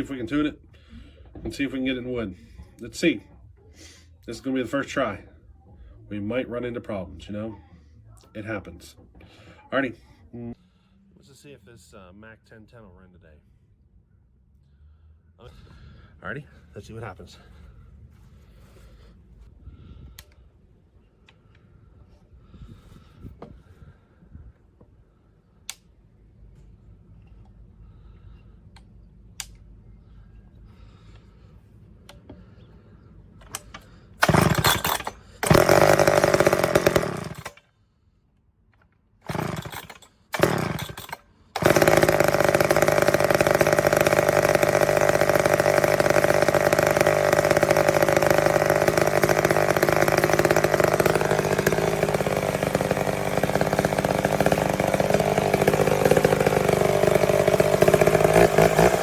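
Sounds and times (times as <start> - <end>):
chainsaw starter clicks: 33.4 - 37.6, 38.8 - 59.0
chainsaw engine running: 34.2 - 37.6, 39.2 - 59.0.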